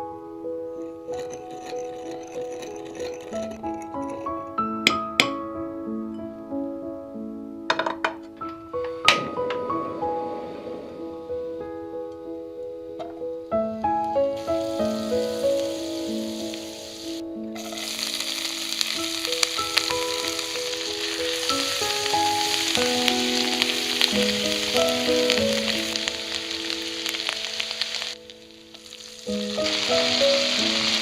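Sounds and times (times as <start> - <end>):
soft background music: 0.0 - 31.0
food sizzling in hot oil: 1.0 - 4.3, 14.4 - 31.0.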